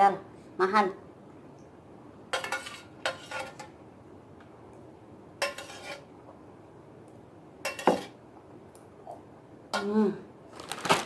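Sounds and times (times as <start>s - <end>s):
utensils clinking against bowl: 2.3s - 3.8s, 7.7s - 8.2s.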